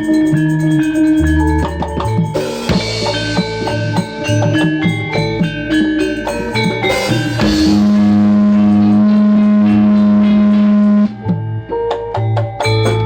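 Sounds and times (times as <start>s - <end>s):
drums: 0.0s - 13.0s
mallet-like notes: 0.0s - 13.0s
low held note: 7.1s - 11.2s.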